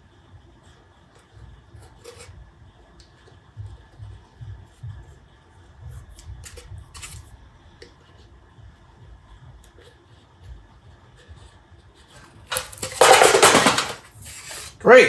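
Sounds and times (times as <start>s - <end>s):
scratchy rubbing and scraping: 0.7s - 2.4s, 14.2s - 14.8s.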